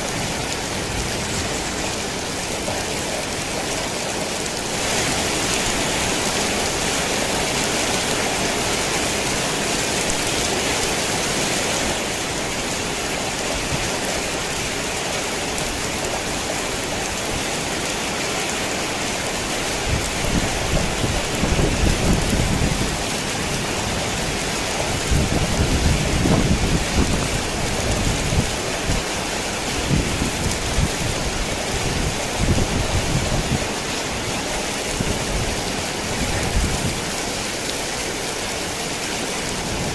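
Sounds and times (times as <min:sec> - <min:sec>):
heavy rain on a tin roof: 0:00.0 - 0:39.9
thunder rumbling: 0:19.8 - 0:29.0.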